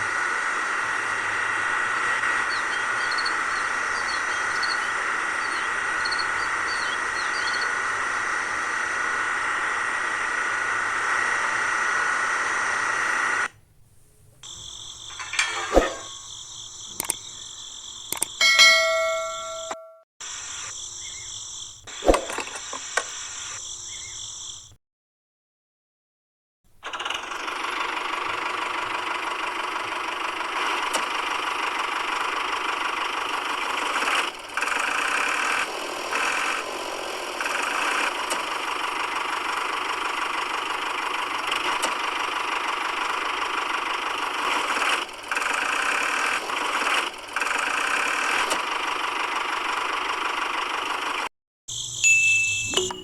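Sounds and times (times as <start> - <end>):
small motor buzzing: 0.0 - 13.5, 26.8 - 49.1.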